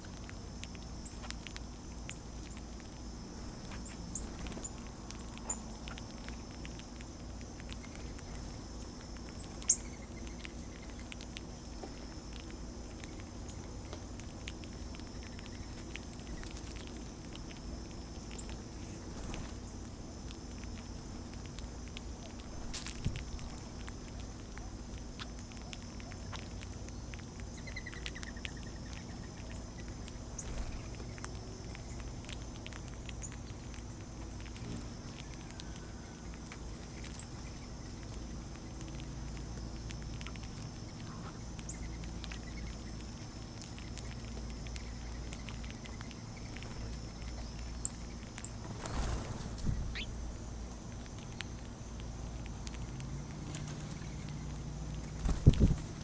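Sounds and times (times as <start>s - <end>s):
faint bird chirps: 7.7s - 11.2s, 25.2s - 32.2s, 40.8s - 50.2s.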